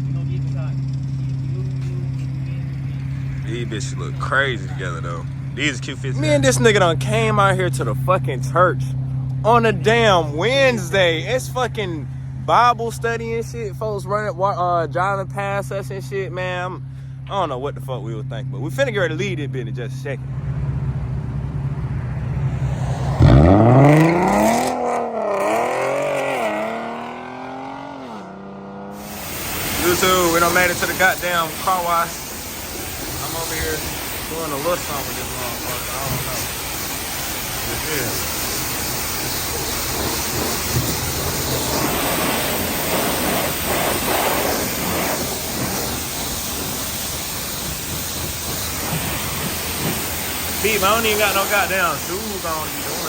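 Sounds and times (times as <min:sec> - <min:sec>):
car engine revving: 0:00.0 - 0:16.1, 0:17.8 - 0:53.0
high-pressure water spraying: 0:29.0 - 0:53.0.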